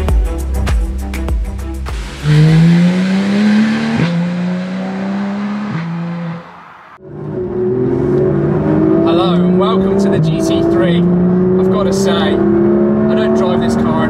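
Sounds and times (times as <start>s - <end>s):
car engine accelerating: 1.9s - 14.0s.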